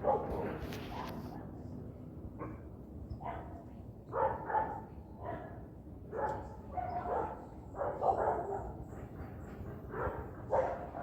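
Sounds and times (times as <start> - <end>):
dog barking: 0.0 - 1.1, 4.2 - 5.5, 6.1 - 8.7, 9.9 - 11.0.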